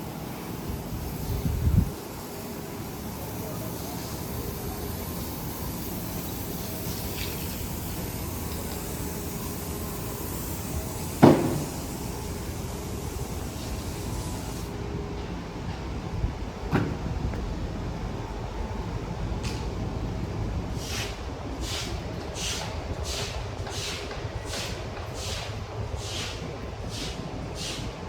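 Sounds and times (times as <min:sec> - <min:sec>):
city street traffic: 0:00.0 - 0:28.0
loud sharp knock: 0:11.2 - 0:11.8.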